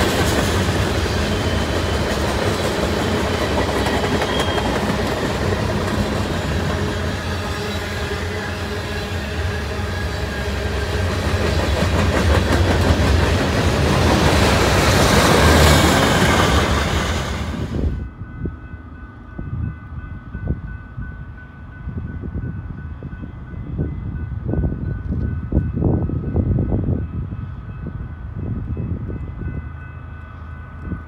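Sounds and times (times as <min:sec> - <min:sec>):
freight cars rolling on rails: 0:00.0 - 0:18.0.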